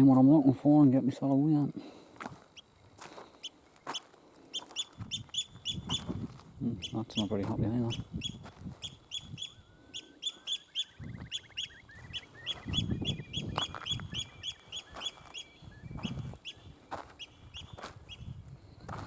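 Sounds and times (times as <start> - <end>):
high piping bird alarm calls: 2.5 - 18.4
low rising bird trill: 4.6 - 6.2, 6.8 - 18.3
soft footsteps thudding: 8.4 - 8.9, 14.9 - 18.1.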